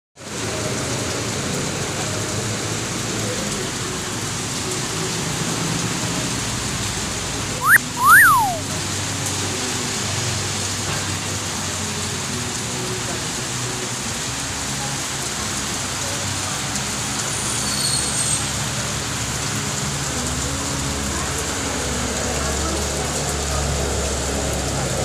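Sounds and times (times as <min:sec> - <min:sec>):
rain falling: 0:00.2 - 0:07.7, 0:08.4 - 0:25.0
wolf whistle: 0:07.6 - 0:08.7.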